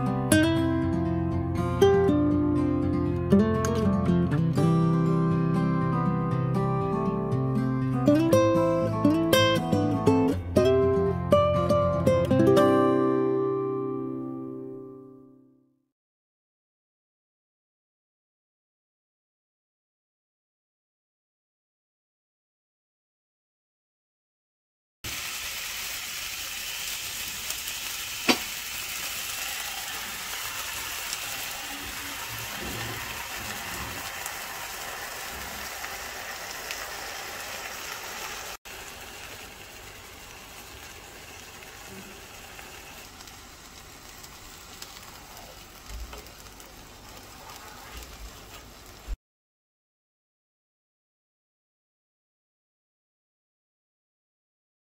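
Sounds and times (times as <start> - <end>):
pancake sizzling in oil: 25.1 - 49.2.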